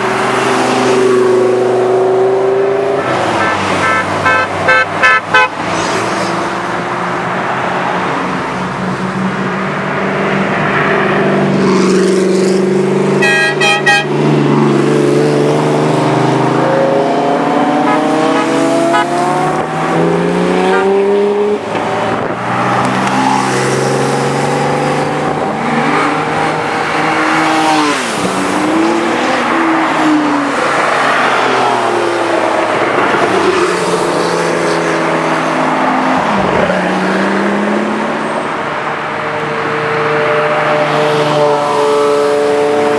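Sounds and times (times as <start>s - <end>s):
sports car engines revving: 0.0s - 42.9s
car horn toots: 3.3s - 5.6s, 13.2s - 14.2s, 17.8s - 19.6s, 20.6s - 21.1s.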